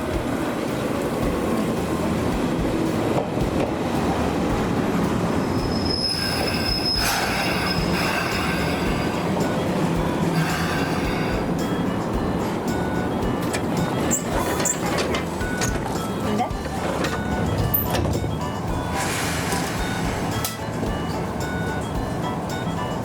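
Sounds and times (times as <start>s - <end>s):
electric train rumbling on track: 0.0s - 23.0s
high-pitched wheel squeal: 5.4s - 23.0s.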